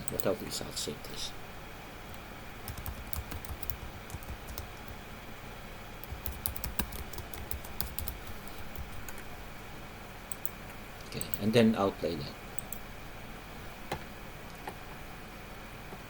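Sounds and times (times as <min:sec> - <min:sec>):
typing on computer keyboard: 0:02.7 - 0:05.0, 0:06.0 - 0:09.2.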